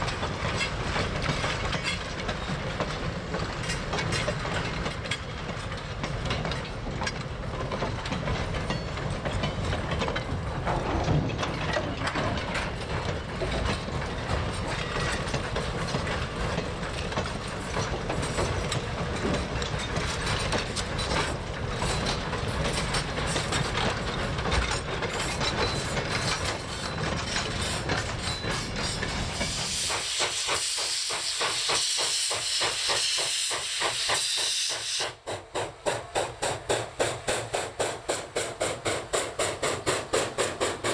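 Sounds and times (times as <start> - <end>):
wheels clattering on rails: 0.0 - 40.9
loud high steam hiss: 27.6 - 40.9.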